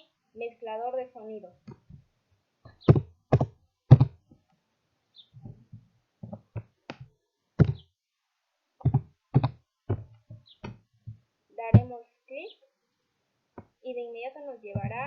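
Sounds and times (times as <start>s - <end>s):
keyboard keys tapping: 2.7s - 4.2s, 7.6s - 7.8s, 8.8s - 11.9s, 14.7s - 15.0s.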